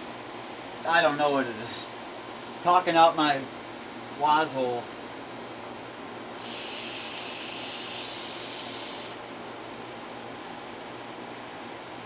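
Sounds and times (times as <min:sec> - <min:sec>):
air conditioner running: 0:00.0 - 0:12.0
breath blowing hiss: 0:06.4 - 0:09.2.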